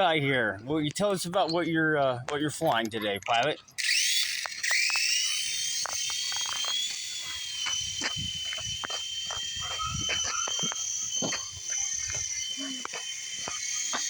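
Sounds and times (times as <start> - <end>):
toy helicopter rotor motor whining: 3.4 - 14.0.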